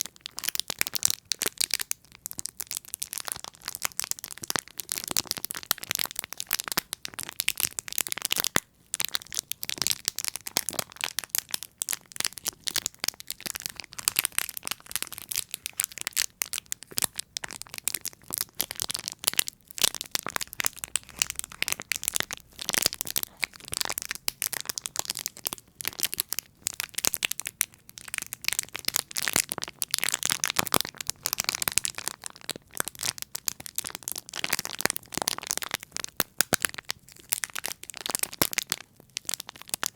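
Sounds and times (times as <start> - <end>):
crisp crackling clicks and crinkles: 0.0 - 39.9.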